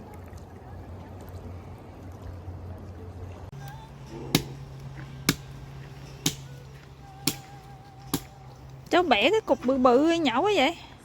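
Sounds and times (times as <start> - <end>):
axe chopping firewood: 3.6 - 8.5.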